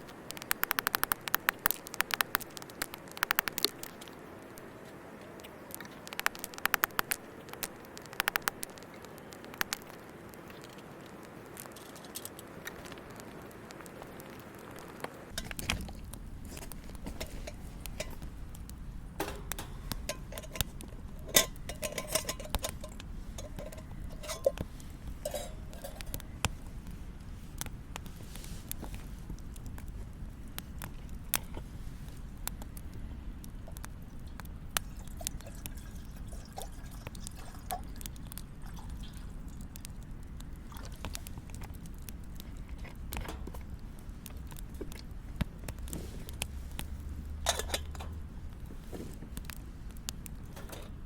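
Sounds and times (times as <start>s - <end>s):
steady low rumble: 12.5s - 51.0s
camping gear clinks and taps: 19.2s - 26.2s.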